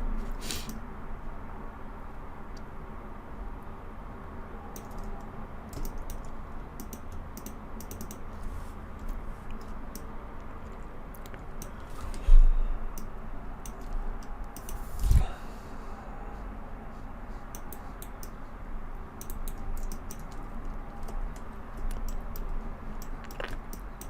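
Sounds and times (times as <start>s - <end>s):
keyboard keys clicking: 4.8s - 8.3s, 19.2s - 24.0s.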